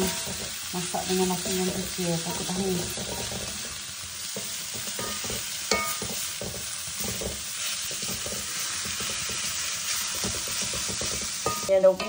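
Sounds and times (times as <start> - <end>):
leaves sizzling in oil: 0.0 - 12.0
utensil scraping pan: 4.3 - 12.0.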